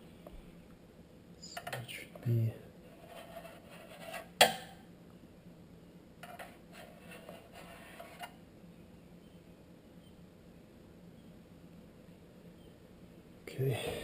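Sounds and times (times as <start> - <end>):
light scraping of small parts: 6.2 - 8.4.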